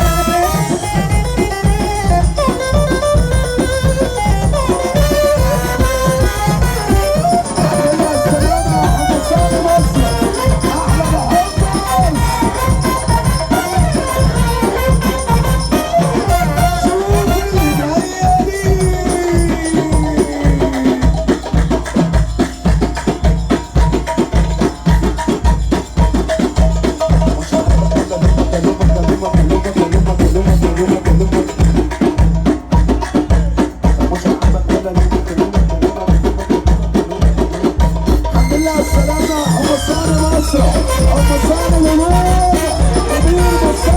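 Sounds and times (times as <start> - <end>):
sliding melody line: 0.0 - 21.0, 38.3 - 43.9
electronic dance music with fast drums: 0.0 - 43.9.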